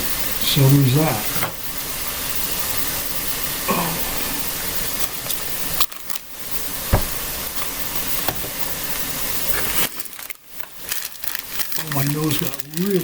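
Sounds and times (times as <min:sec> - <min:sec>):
food sizzling in a skillet: 0:00.0 - 0:13.0
single knock: 0:06.9 - 0:07.2.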